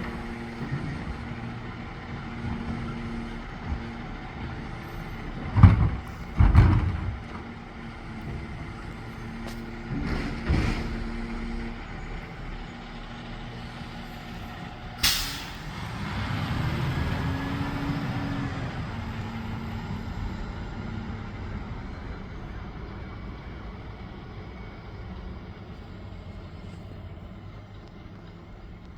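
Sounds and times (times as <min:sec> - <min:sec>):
garbage truck engine: 0:00.0 - 0:28.9
air brake hiss: 0:15.0 - 0:15.9.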